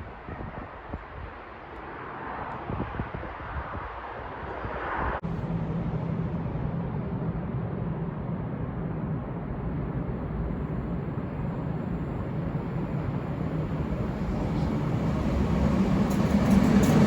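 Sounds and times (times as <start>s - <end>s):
electric train rumbling past: 4.8s - 17.0s
windy hiss: 8.0s - 17.0s.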